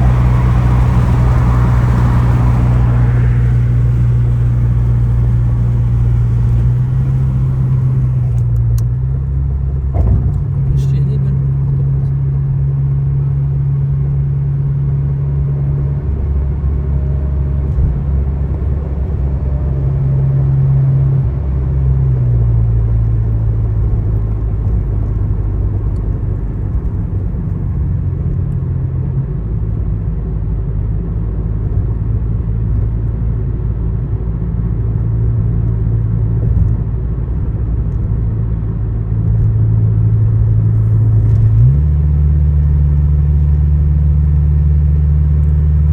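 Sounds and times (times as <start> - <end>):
car engine and road drone: 0.0 - 45.9.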